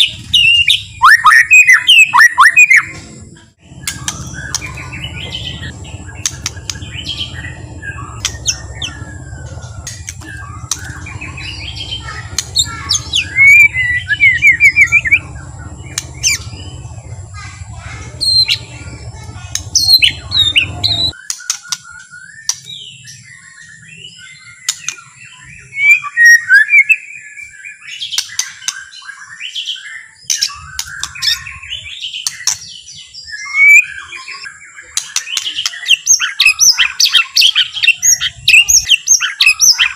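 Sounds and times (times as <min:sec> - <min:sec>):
bird singing whistles and trills: 0:00.0 - 0:03.0, 0:03.8 - 0:16.9, 0:18.2 - 0:39.9
low background rumble: 0:03.6 - 0:21.2.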